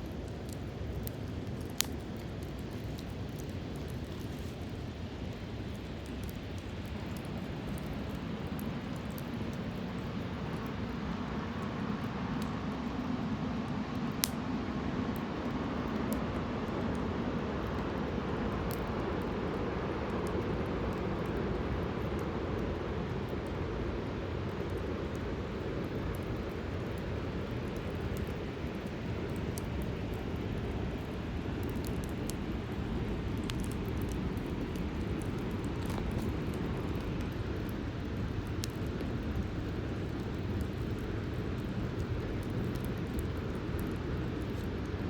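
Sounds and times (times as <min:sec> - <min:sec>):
burning wood crackling: 0:00.0 - 0:45.0
flames rushing: 0:00.0 - 0:45.0.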